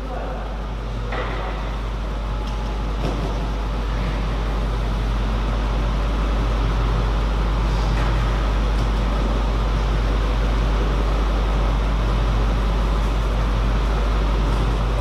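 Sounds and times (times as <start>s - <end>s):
ventilation hum and hiss: 0.0s - 15.0s.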